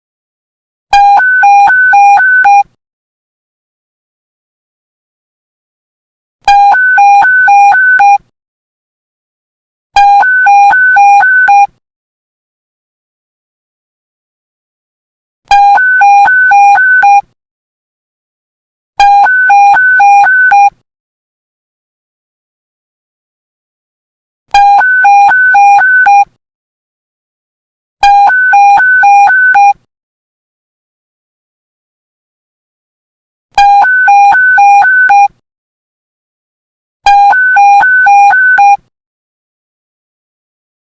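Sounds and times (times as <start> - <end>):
two-tone electronic beep alert: 0.9 - 2.7, 6.5 - 8.2, 10.0 - 11.7, 15.5 - 17.2, 19.0 - 20.7, 24.5 - 26.3, 28.0 - 29.8, 33.6 - 35.3, 37.1 - 38.9.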